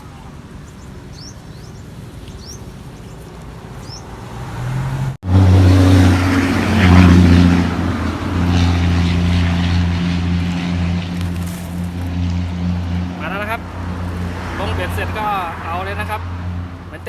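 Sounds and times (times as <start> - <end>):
birds chirping: 0.0 - 17.0
vehicle engine running loudly: 5.0 - 17.0
low hum: 5.2 - 14.6.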